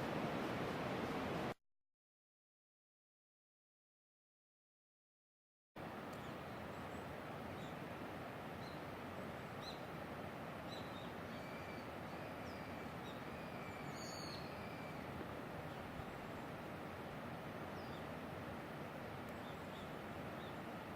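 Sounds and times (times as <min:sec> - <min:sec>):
steady rushing hiss: 0:00.0 - 0:01.6
small birds chirping: 0:10.7 - 0:16.6, 0:19.3 - 0:20.8.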